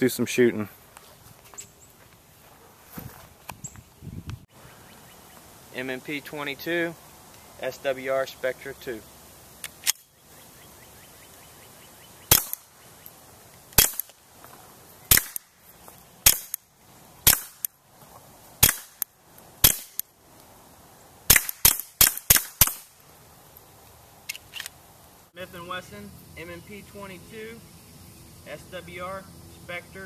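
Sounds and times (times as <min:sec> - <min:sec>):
suppressed pistol shots: 0:12.3 - 0:12.7, 0:13.8 - 0:14.1, 0:15.1 - 0:15.5, 0:16.2 - 0:16.6, 0:17.2 - 0:17.7, 0:18.6 - 0:19.0, 0:19.6 - 0:20.0, 0:21.3 - 0:22.9.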